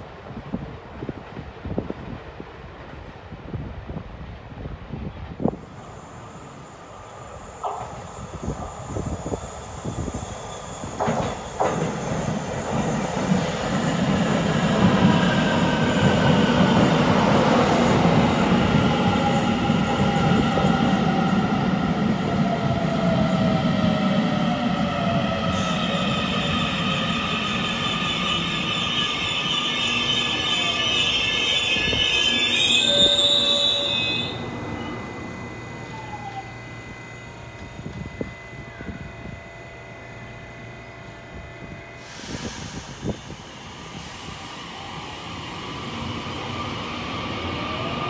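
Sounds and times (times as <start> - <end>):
high brake squeal: 7.4 - 12.7, 25.5 - 36.6, 42.0 - 43.3
electric train motor whine: 22.5 - 44.0.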